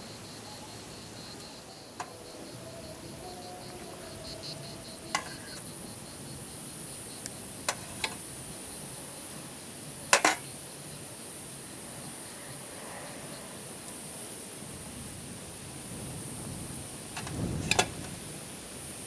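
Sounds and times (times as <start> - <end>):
steady hiss: 0.0 - 19.0
cookware and utensils clinking: 5.1 - 5.4, 7.7 - 8.2, 10.1 - 10.5.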